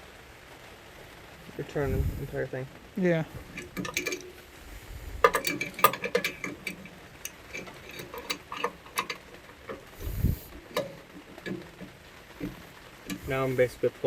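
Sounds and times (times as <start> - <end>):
wrench clicking on metal: 5.3 - 10.1.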